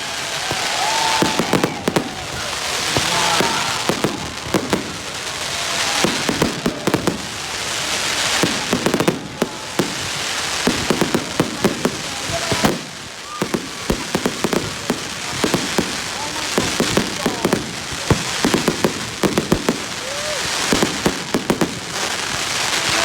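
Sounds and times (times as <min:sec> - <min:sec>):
rushing hiss: 0:00.0 - 0:14.4
fireworks bangs and crackles: 0:00.0 - 0:23.0.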